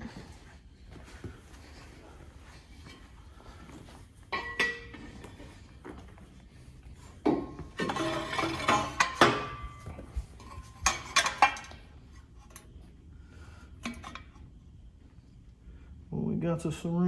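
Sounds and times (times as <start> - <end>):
metal parts clanking: 4.3 - 5.2, 7.4 - 11.8.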